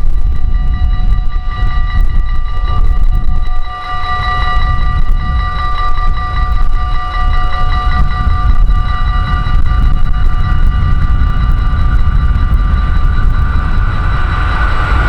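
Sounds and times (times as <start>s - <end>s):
train passing with whining tones: 0.0s - 15.0s.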